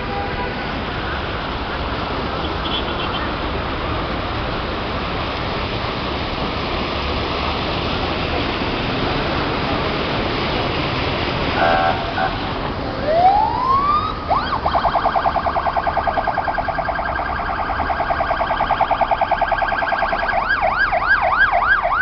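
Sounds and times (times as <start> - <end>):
rain and running water: 0.0 - 22.0
emergency vehicle siren: 11.4 - 22.0.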